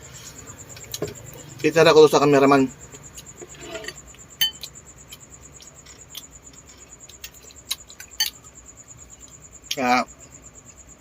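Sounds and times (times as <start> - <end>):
tableware clicks and clinks: 3.6 - 4.7.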